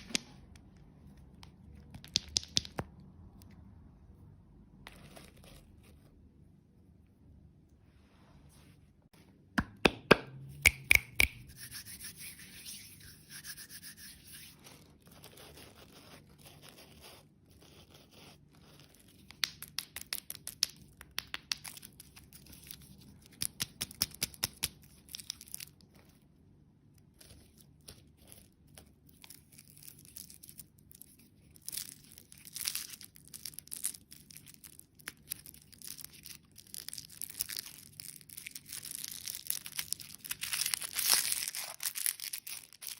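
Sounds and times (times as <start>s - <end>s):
plastic packaging rustling and tearing: 29.0s - 42.9s.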